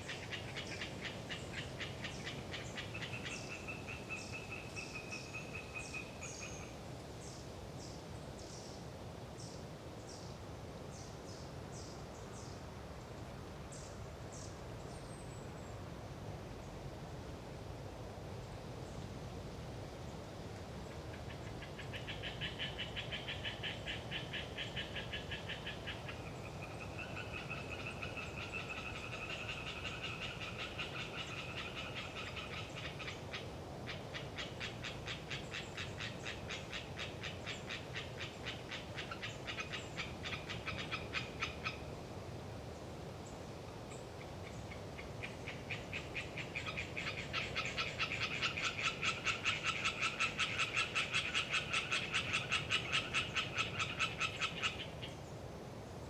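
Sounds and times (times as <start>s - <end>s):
tree frogs calling: 0.0s - 7.9s, 20.8s - 42.4s, 43.2s - 56.0s.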